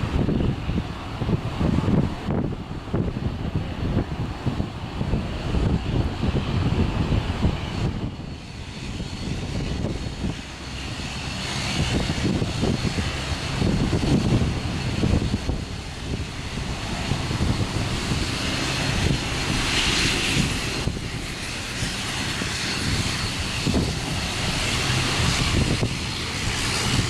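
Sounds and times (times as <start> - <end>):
airliner engines whining: 0.0 - 27.0
wind buffeting microphone: 0.0 - 27.0.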